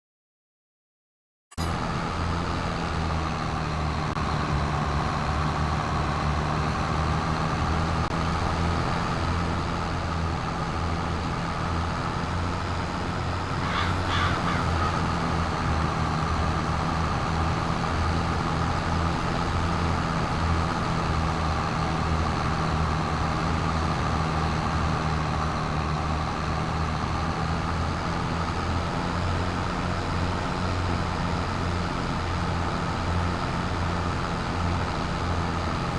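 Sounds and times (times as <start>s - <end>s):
tractor engine running: 1.6s - 35.9s
short call: 13.6s - 15.3s.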